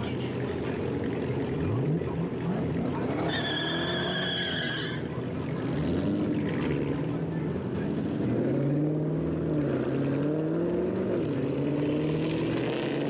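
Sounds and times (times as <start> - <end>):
car engines revving: 0.0 - 13.0
tire squeal: 2.8 - 6.1.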